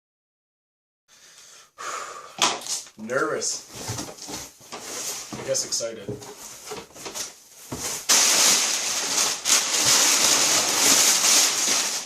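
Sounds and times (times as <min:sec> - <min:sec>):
packing paper and cardboard crinkling: 0:03.7 - 0:12.0.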